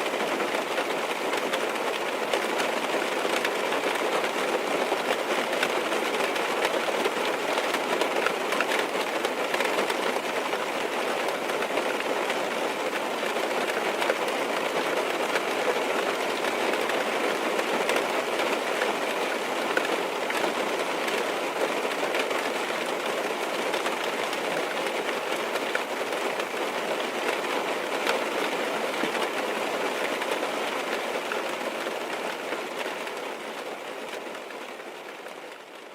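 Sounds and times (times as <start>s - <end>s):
heavy rain on car roof: 0.0s - 35.9s.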